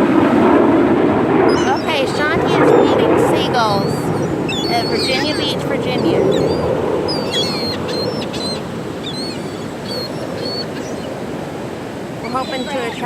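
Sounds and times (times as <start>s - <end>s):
gulls squawking: 1.3s - 13.0s.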